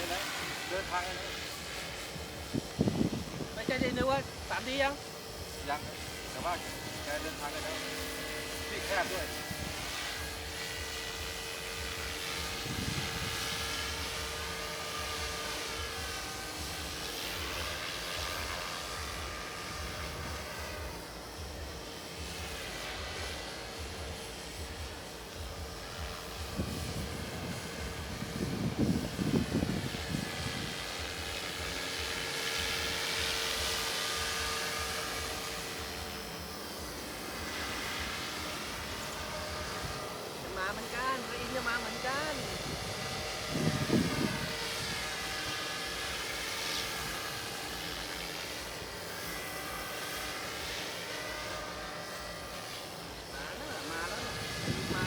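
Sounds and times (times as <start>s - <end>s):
model airplane motor whine: 0.0s - 55.0s
steady hum: 0.0s - 55.0s
wind on microphone: 1.8s - 4.8s, 9.3s - 10.0s, 12.4s - 14.0s, 26.4s - 31.4s, 41.0s - 45.6s, 53.7s - 55.0s.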